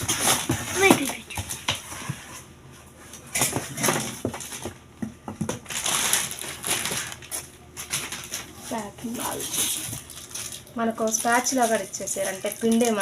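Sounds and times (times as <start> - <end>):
plastic wrapping crinkling: 5.4 - 13.0.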